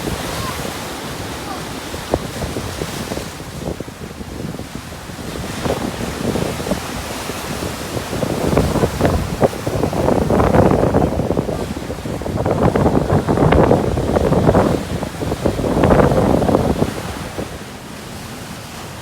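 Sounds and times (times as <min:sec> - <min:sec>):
wind buffeting microphone: 0:00.0 - 0:18.8
storm waves breaking on shore: 0:00.0 - 0:19.0.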